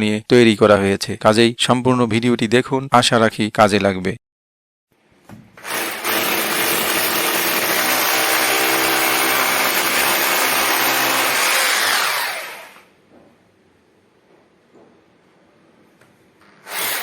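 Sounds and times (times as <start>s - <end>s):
hammer drill drilling into wall: 5.6s - 12.9s, 16.6s - 17.0s.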